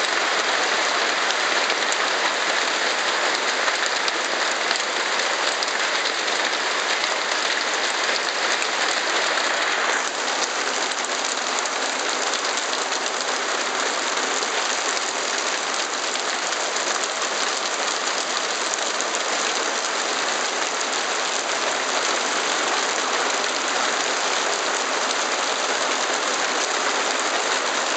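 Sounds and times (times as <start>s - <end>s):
hail pelting the ground: 0.0s - 27.9s.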